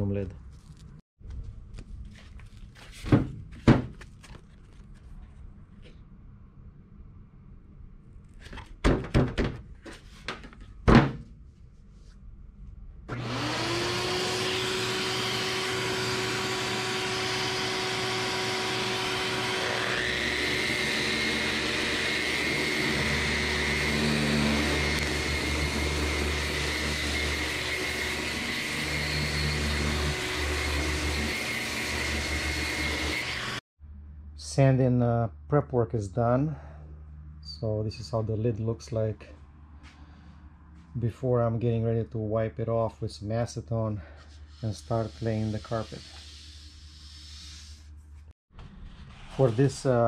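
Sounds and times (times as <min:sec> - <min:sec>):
electric sander on metal: 0:13.1 - 0:33.6.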